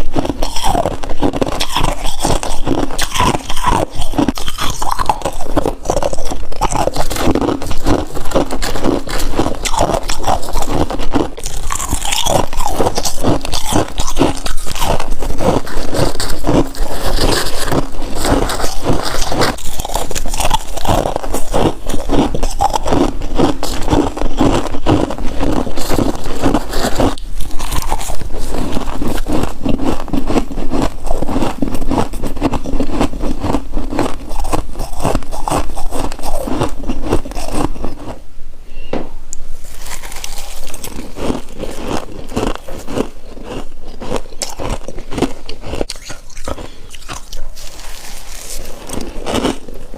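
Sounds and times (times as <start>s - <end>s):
crunching and chewing frost: 0.0s - 38.2s, 39.6s - 49.9s.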